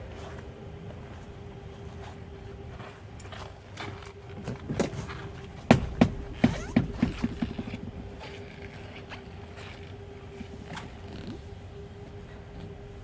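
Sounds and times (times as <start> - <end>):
steady low hum: 0.0 - 13.0
sharp knocks and clatters: 5.7 - 7.8.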